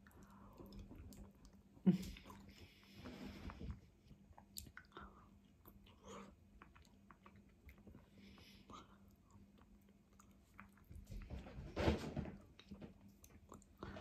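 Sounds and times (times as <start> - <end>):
chewing and wet mouth sounds: 0.0 - 11.2, 12.6 - 14.0.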